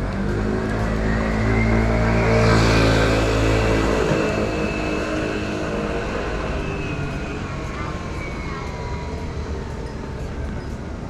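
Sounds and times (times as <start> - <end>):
vehicle engine passing by: 0.0 - 8.1
city street noise: 0.0 - 11.0.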